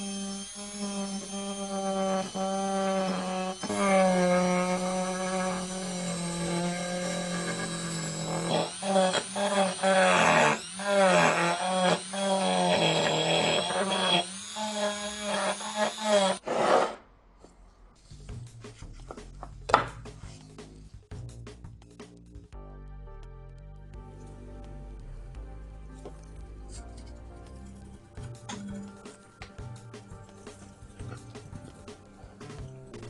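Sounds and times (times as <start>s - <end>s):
electric power tool running: 0.0s - 16.4s
scraping rasp: 0.0s - 17.0s.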